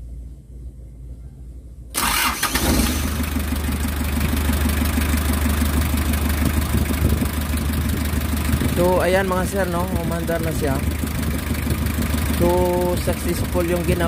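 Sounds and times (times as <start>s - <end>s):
diesel engine idling: 1.9s - 14.0s
engine starter cranking: 2.0s - 7.3s.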